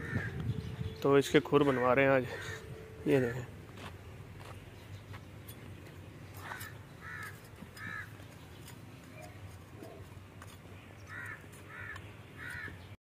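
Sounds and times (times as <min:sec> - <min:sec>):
bird cawing: 0:01.6 - 0:03.5, 0:06.3 - 0:08.2, 0:11.0 - 0:12.9.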